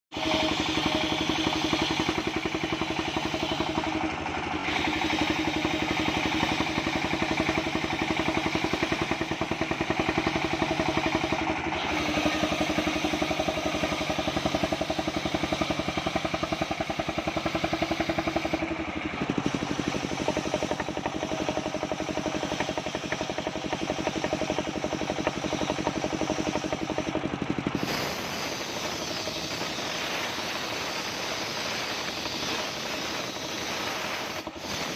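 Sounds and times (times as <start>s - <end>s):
circular sawmill droning: 0.1s - 34.9s.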